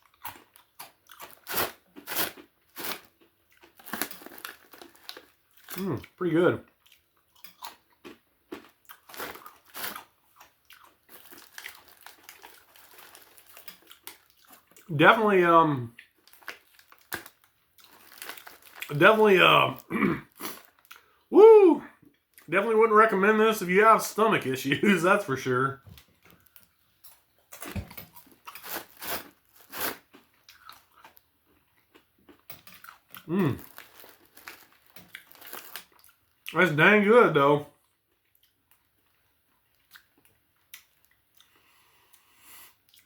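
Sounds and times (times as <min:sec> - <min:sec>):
person chewing crunchy snack: 0:00.0 - 0:14.9, 0:16.0 - 0:21.2, 0:26.4 - 0:36.5, 0:38.2 - 0:43.0.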